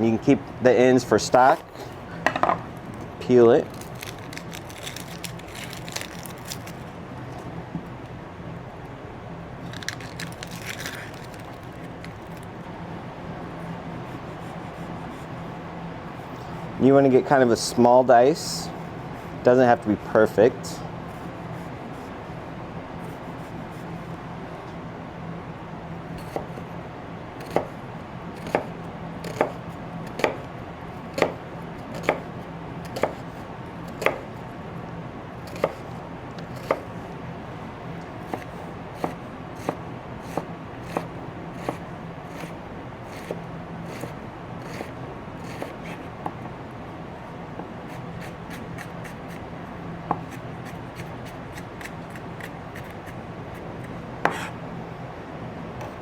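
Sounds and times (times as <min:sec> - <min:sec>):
knife chopping on cutting board: 0:27.4 - 0:27.7, 0:28.4 - 0:30.4, 0:31.1 - 0:32.2, 0:32.9 - 0:33.2, 0:34.0 - 0:34.2, 0:35.5 - 0:35.8, 0:36.5 - 0:36.9, 0:38.3 - 0:46.4, 0:50.1 - 0:53.2, 0:54.2 - 0:54.5.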